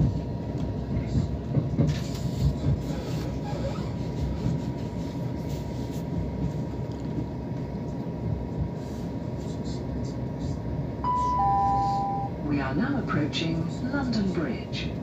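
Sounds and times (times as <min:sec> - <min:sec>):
train wheels rumbling on track: 0:00.0 - 0:11.0
faint high tone: 0:11.0 - 0:12.4.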